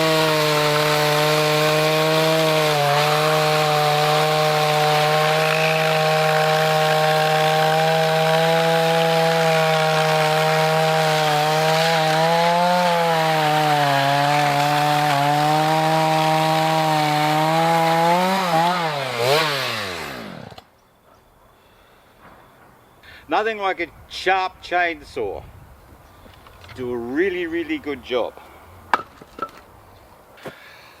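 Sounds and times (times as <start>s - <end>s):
chainsaw cutting log: 0.0s - 20.7s.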